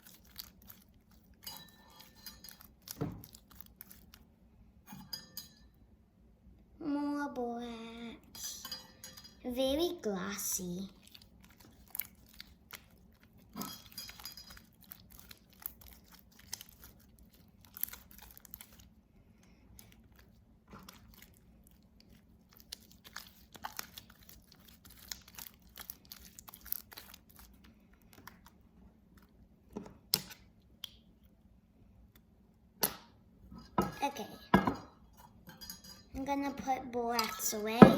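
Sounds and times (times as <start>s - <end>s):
wet slime squishing: 0.0s - 4.3s, 10.1s - 31.4s.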